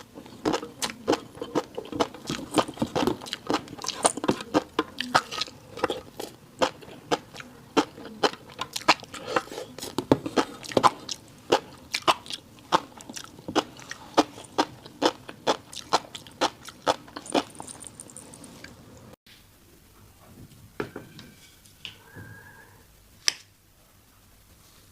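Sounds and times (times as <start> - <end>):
wet chewing clicks and crunches: 0.0 - 9.5, 10.3 - 18.8.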